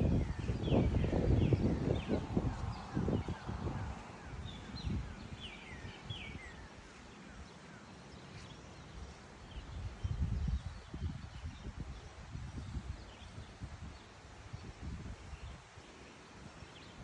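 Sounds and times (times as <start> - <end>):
small birds chattering: 0.0 - 11.5.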